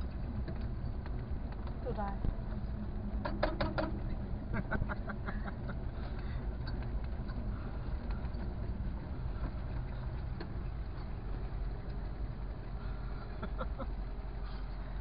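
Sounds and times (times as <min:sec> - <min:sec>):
car engine running low: 0:00.0 - 0:15.0
tyres rolling on gravel: 0:00.0 - 0:15.0.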